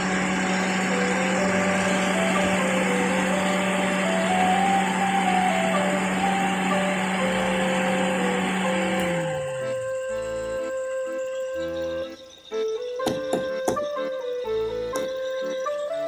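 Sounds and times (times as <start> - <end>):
car blower fan humming: 0.0 - 12.0
faint music melody: 0.0 - 16.0.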